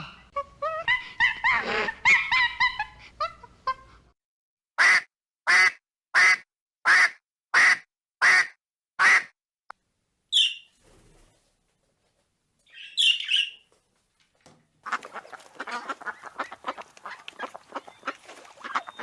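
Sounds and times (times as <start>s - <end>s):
duck quacking: 4.8s - 9.3s, 14.8s - 19.0s.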